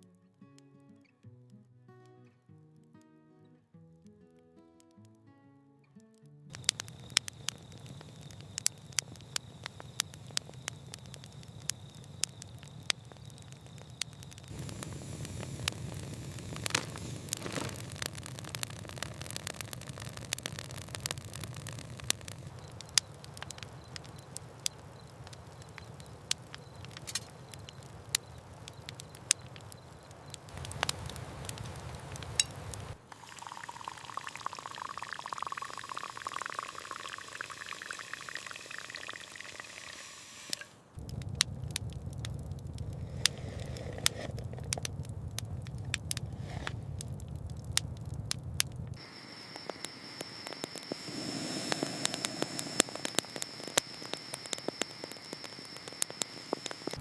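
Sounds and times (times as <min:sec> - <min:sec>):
campfire crackling and popping: 0:00.0 - 0:57.0
liquid pouring and splashing: 0:33.1 - 0:40.6.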